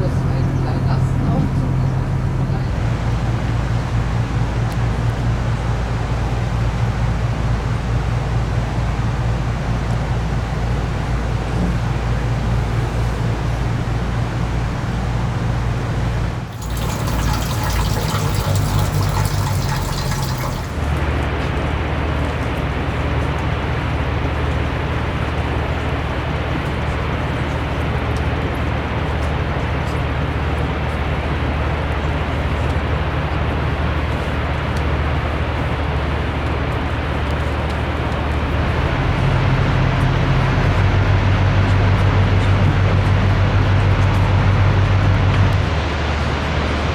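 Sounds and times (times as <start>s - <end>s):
engine humming: 0.0s - 23.0s
rushing splashing water: 16.4s - 21.1s.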